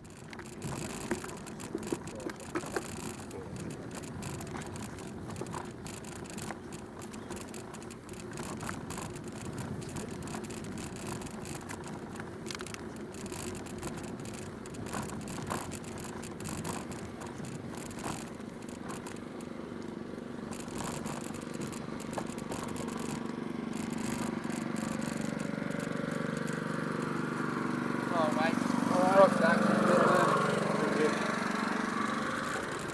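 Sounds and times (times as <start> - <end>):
bicycle clicks and rattles: 0.0 - 32.9
bicycle tyres on gravel: 0.0 - 32.9
engine: 0.0 - 32.9.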